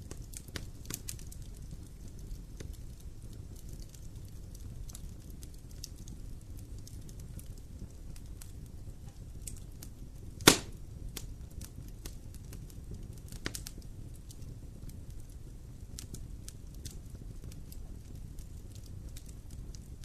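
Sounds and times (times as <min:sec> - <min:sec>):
campfire crackling: 0:00.0 - 0:20.0
low steady fire rumble: 0:00.0 - 0:20.0
sharp fire pops: 0:10.2 - 0:14.5.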